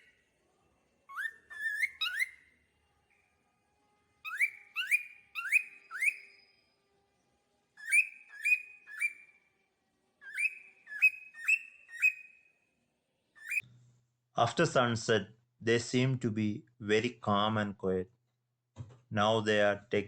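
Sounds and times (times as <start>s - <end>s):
cockatiel whistling calls: 1.1s - 2.5s, 4.2s - 6.4s, 7.8s - 9.3s, 10.2s - 12.4s, 13.4s - 13.6s.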